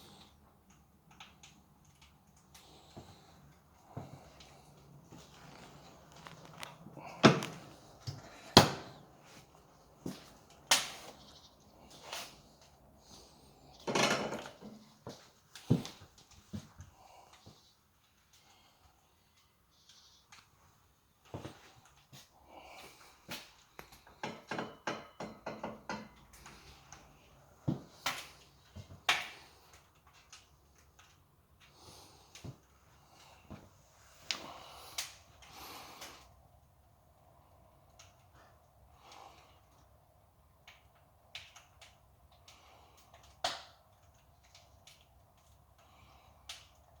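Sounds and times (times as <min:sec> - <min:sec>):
light clicks and knocks: 0:23.3 - 0:32.6.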